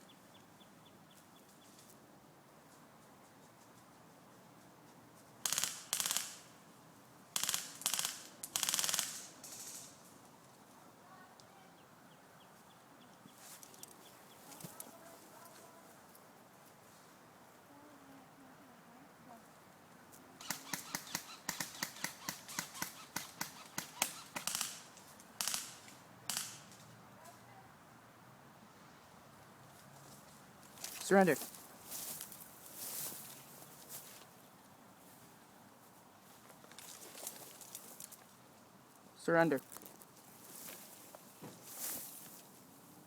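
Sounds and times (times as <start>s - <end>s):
airsoft gun bursts: 5.4s - 6.5s, 7.4s - 9.9s, 20.4s - 26.7s.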